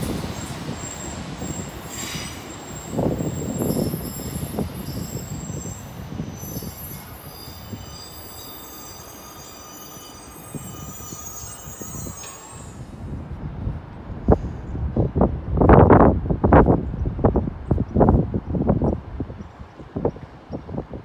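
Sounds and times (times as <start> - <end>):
diesel railcar rumble: 0.0 - 21.0
high-pitched wheel squeal: 0.9 - 12.8.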